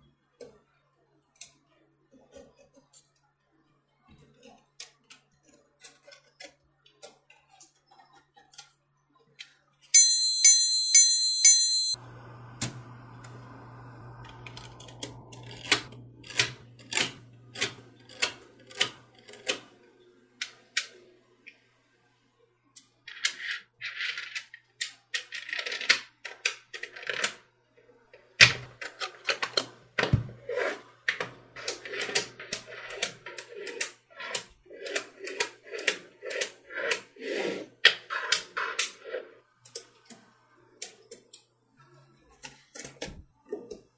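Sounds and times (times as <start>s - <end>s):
steady low hum: 12.0s - 18.6s.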